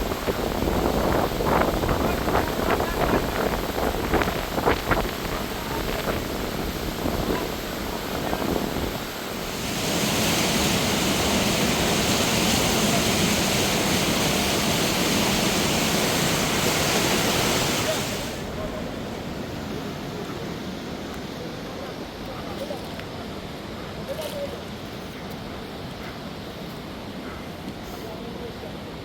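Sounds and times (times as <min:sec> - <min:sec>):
wind buffeting microphone: 0:00.0 - 0:20.2
fast-flowing river rushing: 0:00.0 - 0:22.5.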